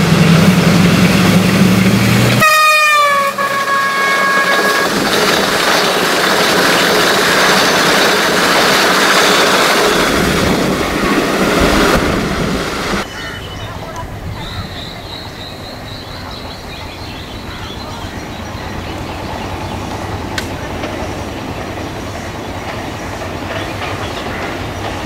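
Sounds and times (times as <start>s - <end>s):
coaches rolling on rails: 0.0s - 25.0s
locomotive engine droning: 0.0s - 25.0s
train horn: 2.4s - 5.0s.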